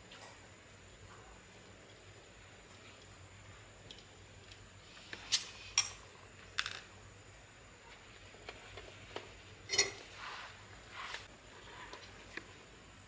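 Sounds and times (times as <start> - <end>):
metal tools clinking: 9.7 - 10.0.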